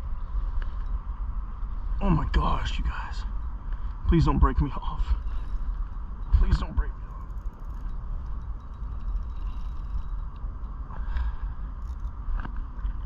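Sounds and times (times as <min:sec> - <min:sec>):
spinning reel whirring: 0:02.6 - 0:12.5
reel clicks: 0:04.8 - 0:13.0.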